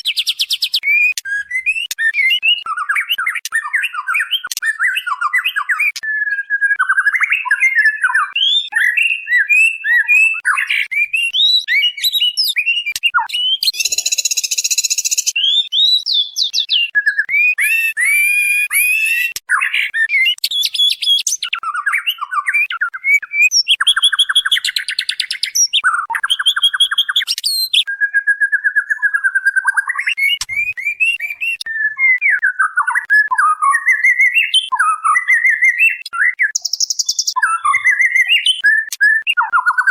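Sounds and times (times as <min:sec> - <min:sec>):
bird calling with whistled phrases: 0:00.0 - 0:39.9.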